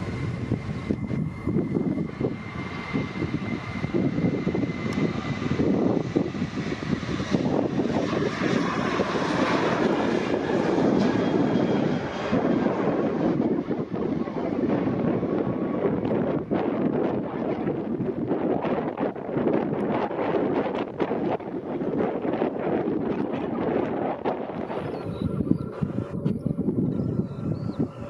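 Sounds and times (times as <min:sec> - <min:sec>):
jet engines rumbling: 0:00.0 - 0:28.0.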